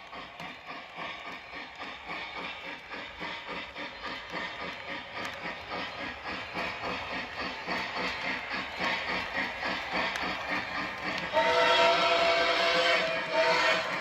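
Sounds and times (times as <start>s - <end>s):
rhythmic steam chuffing: 0.0s - 14.0s
steam whistle blowing: 11.3s - 14.0s.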